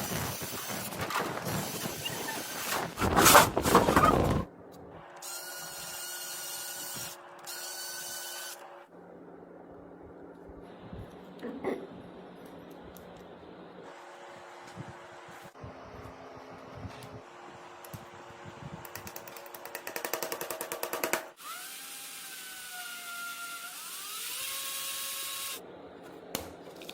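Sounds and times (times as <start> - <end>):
small motor running roughly: 21.4 - 25.6.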